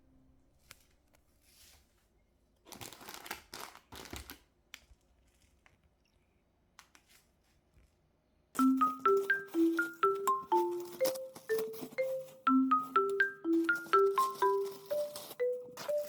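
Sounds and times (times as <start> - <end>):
bag crinkling and rustling: 2.7 - 4.4
marimba music: 8.6 - 16.0.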